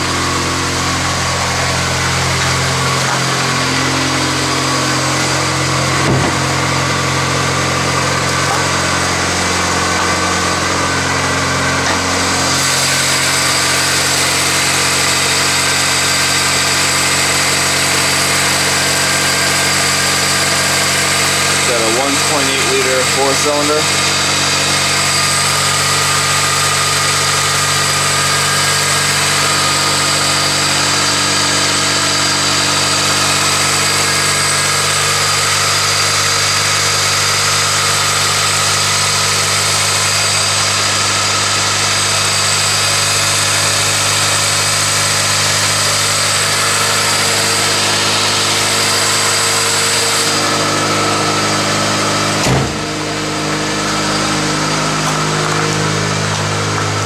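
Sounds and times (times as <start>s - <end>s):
car engine idling: 0.0s - 57.0s
brief thump: 6.0s - 6.5s, 52.4s - 52.8s.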